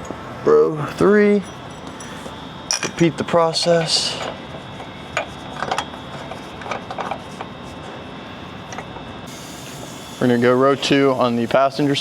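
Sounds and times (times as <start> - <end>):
metal hardware clinking: 1.5 - 3.0.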